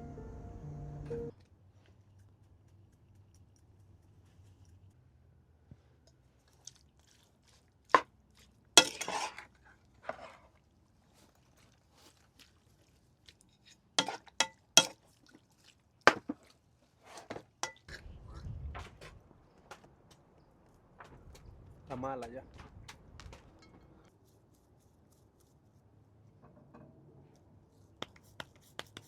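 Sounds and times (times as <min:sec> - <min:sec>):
low rumble: 0:18.0 - 0:19.3.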